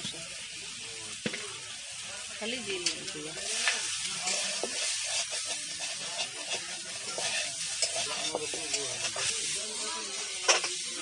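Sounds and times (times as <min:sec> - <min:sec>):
eel pieces sizzling in oil: 0:00.0 - 0:11.0
spatula scraping and tapping pan: 0:02.8 - 0:11.0.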